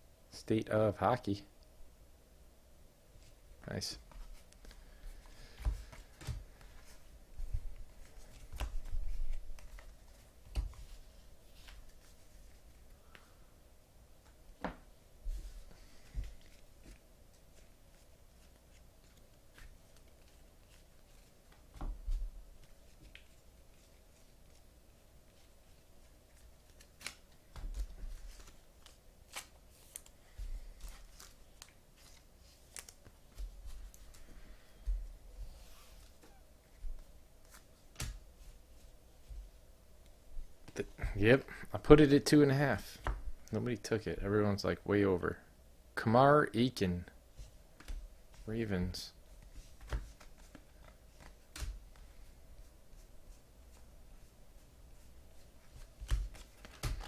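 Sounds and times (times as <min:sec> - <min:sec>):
cards sliding and shuffling: 0:26.3 - 0:34.3, 0:37.4 - 0:38.6, 0:49.4 - 0:52.2, 0:55.6 - 0:57.0.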